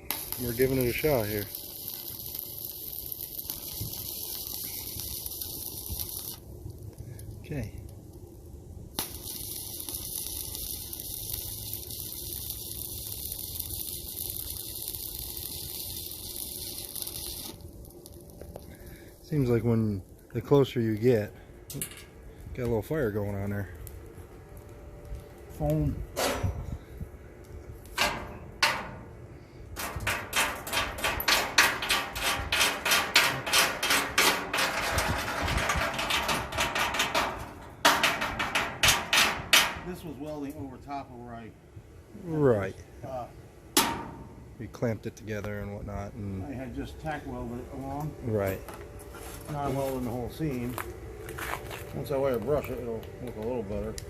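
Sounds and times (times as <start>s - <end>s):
arc welder sizzling hiss: 0.0s - 54.0s
welder striking click: 43.8s - 44.3s.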